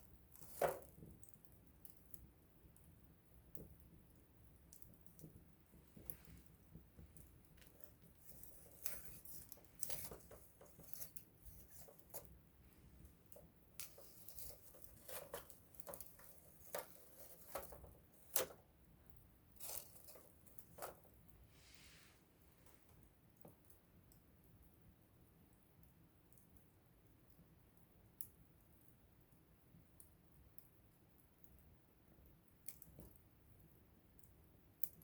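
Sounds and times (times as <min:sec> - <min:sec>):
faint hiss: 0:19.4 - 0:23.4.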